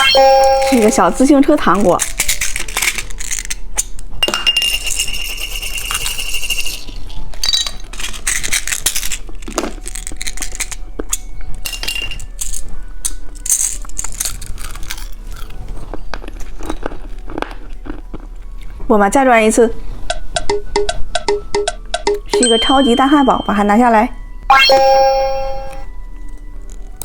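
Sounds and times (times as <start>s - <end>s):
plastic toys clicking and clinking: 0.0s - 15.6s
background music: 0.0s - 27.0s.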